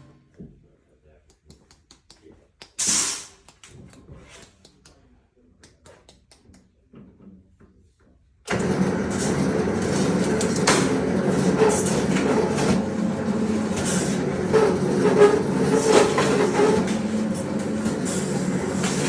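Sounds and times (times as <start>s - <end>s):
shop machine running: 8.5s - 19.0s.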